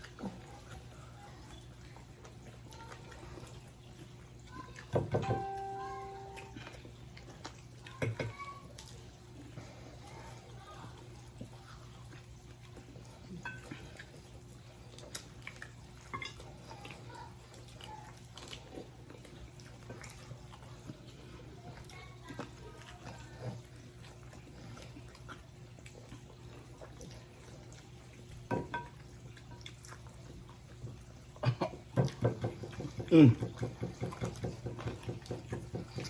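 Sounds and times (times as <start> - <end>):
chewing and smacking: 0.0 - 4.9, 6.0 - 36.0
low steady hum: 5.1 - 7.6.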